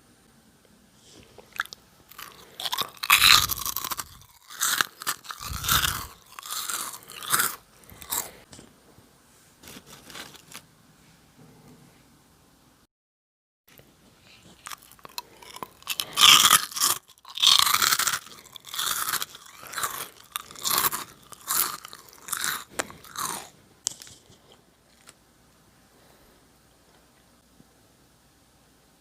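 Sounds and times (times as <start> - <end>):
crunching fried snack: 1.5 - 8.4, 9.6 - 10.7, 14.5 - 25.2.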